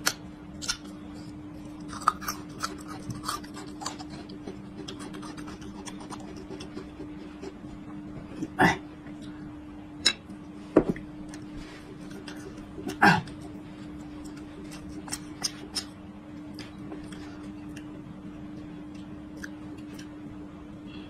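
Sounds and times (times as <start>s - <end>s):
crunching garlic: 0.0s - 7.5s
steady low hum: 0.0s - 21.0s.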